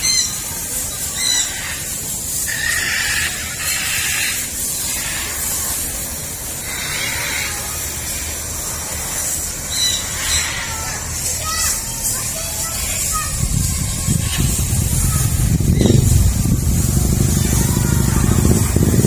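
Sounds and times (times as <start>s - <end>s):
harsh scratchy bird squawks: 0.0s - 18.4s
steady high hiss: 0.0s - 19.0s
bird chirp: 15.6s - 16.3s.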